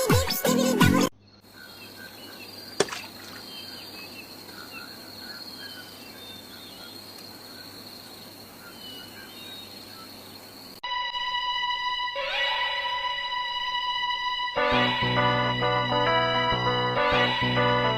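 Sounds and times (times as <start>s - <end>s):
bird chirps: 1.2s - 10.3s
insect drone: 1.2s - 15.4s.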